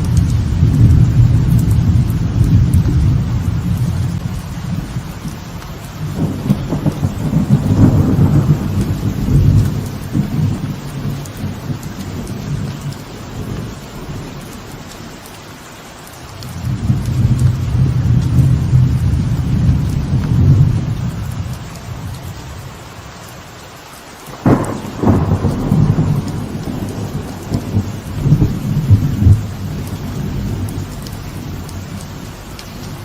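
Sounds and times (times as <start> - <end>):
thunder rolling: 0.0 - 14.8, 16.5 - 22.7, 24.4 - 33.0
light rain: 0.0 - 33.0.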